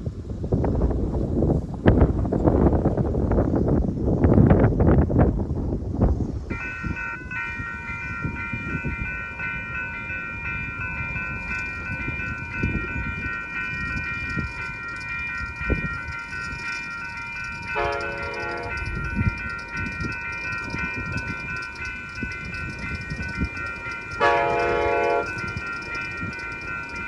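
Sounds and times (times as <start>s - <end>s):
train rumbling and knocking: 0.0s - 27.0s
high-pitched multi-note tone: 6.5s - 27.0s.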